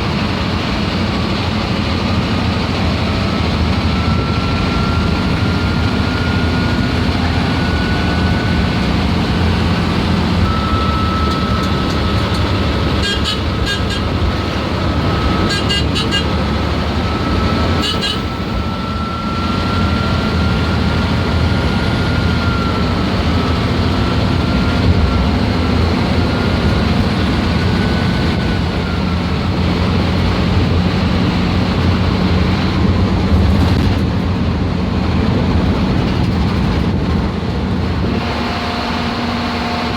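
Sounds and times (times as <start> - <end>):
diesel engine rumble: 0.0 - 39.9
turbocharger whistle: 2.0 - 30.2.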